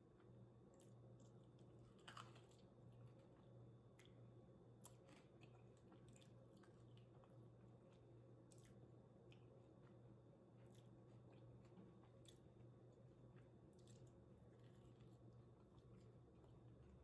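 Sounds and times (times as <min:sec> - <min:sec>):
low steady hum: 0:00.0 - 0:17.0
chewing mouth clicks and smacks: 0:04.8 - 0:10.0, 0:13.3 - 0:16.5.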